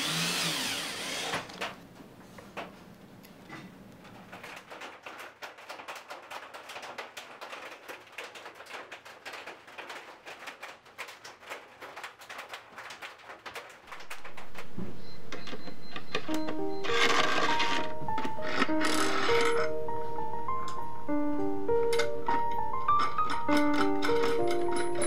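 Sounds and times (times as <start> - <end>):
music: 14.5 - 25.0.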